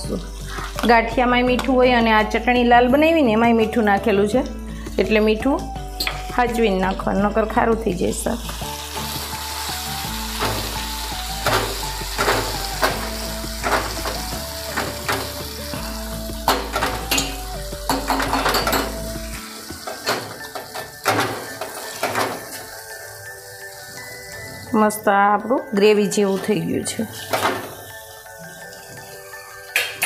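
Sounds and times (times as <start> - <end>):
food sizzling in hot oil: 0.0 - 2.3, 5.8 - 30.0.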